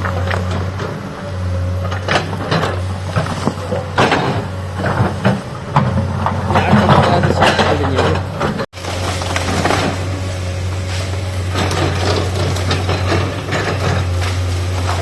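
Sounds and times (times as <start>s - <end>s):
excavator diesel engine: 0.0s - 15.0s
bucket knocking and scraping rock: 2.2s - 10.2s.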